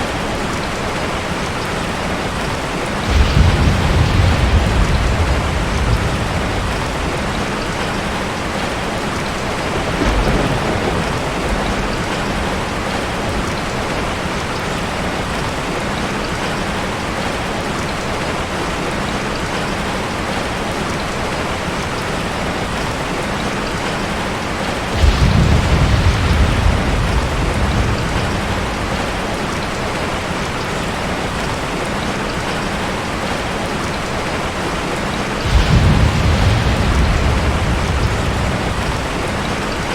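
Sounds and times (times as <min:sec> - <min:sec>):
heavy rain: 0:00.0 - 0:39.9
thunder rolling: 0:02.8 - 0:14.3, 0:24.8 - 0:30.4, 0:35.2 - 0:39.9.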